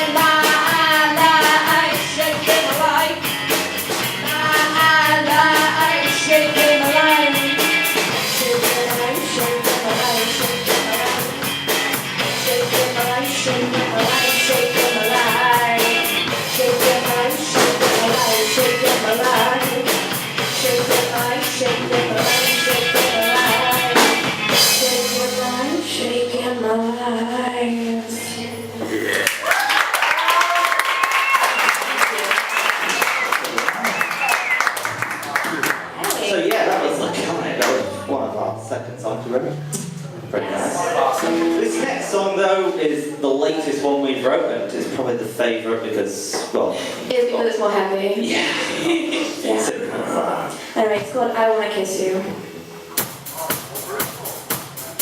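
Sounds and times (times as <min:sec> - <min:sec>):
drum kit beating: 0:00.0 - 0:27.9, 0:29.7 - 0:42.8, 0:52.2 - 0:55.0
person singing: 0:04.2 - 0:11.5, 0:12.2 - 0:29.3.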